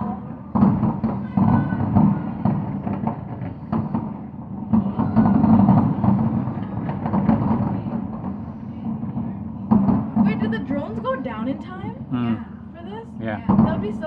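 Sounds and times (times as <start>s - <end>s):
fireworks cracks: 0.0s - 11.2s
fireworks booming: 0.0s - 12.8s, 13.4s - 14.0s.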